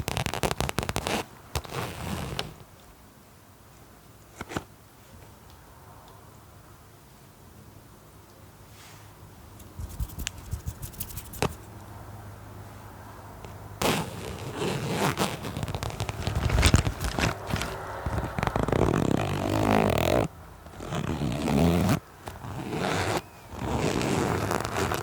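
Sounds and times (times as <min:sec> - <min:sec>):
scratching on a surface: 0:00.0 - 0:02.5, 0:09.6 - 0:11.8, 0:13.8 - 0:25.0
sharp taps: 0:09.6 - 0:11.6.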